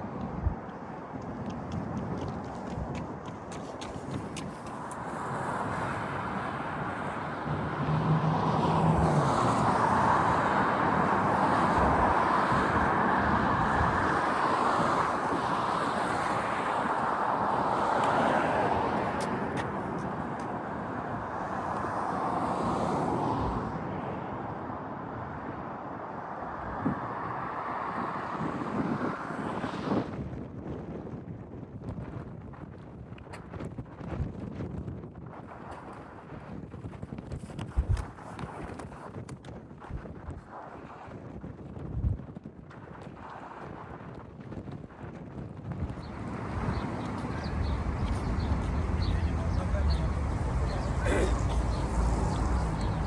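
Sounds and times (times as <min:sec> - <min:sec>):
cars passing: 0:00.1 - 0:30.1, 0:45.8 - 0:53.0.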